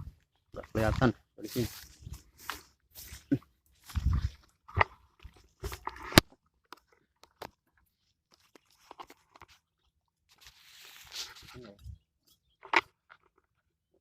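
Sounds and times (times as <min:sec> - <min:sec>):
soft rustle: 0:00.0 - 0:04.6, 0:10.3 - 0:12.0
crunches and clicks of handling: 0:01.8 - 0:11.6.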